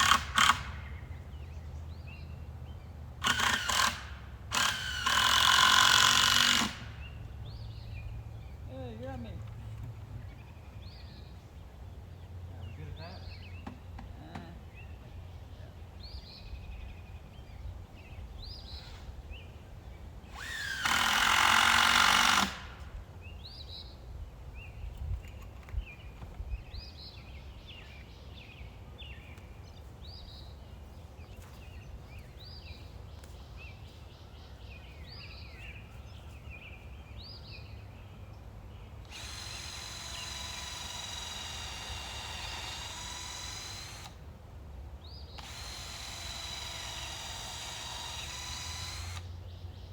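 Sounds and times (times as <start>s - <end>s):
power drill running: 0.0s - 0.9s, 3.2s - 7.1s, 20.3s - 22.9s, 39.0s - 44.2s, 45.4s - 49.3s
birds chirping: 0.0s - 49.9s.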